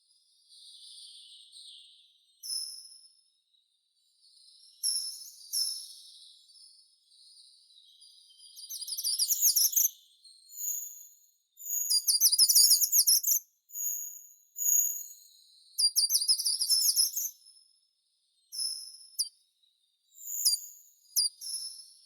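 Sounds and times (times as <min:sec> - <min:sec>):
songbird trilling and whistling: 0:08.6 - 0:15.2, 0:15.8 - 0:17.5, 0:20.2 - 0:21.8.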